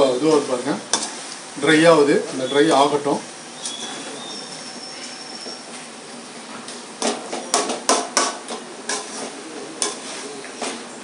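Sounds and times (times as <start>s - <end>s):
food sizzling in a pan: 0.0s - 11.0s
metal spatula scraping: 0.3s - 1.4s, 3.6s - 5.8s, 7.0s - 11.0s.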